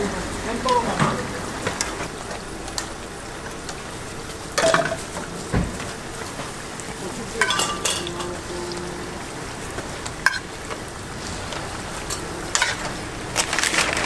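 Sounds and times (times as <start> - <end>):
food sizzling on griddle: 0.0 - 14.0
metal tongs clinking on griddle: 7.4 - 8.4, 10.2 - 10.5, 12.1 - 13.0.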